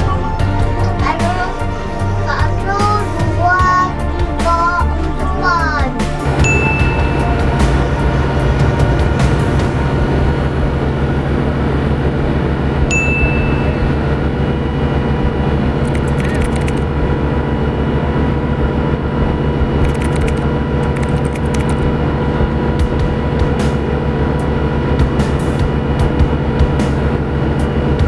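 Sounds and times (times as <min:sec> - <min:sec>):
ship engines droning: 0:00.0 - 0:28.0
short high beep: 0:12.9 - 0:13.9.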